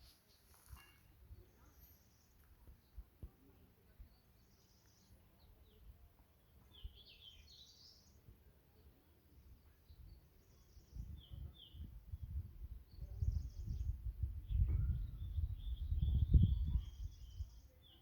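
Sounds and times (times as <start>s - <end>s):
small birds chirping: 0.0s - 18.0s
wind rumble on microphone: 10.9s - 17.8s.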